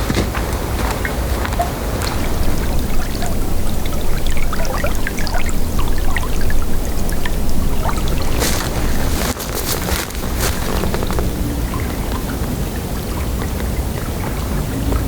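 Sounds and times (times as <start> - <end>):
water trickling and dripping: 0.4 - 15.0
steady low rumble: 1.9 - 13.4.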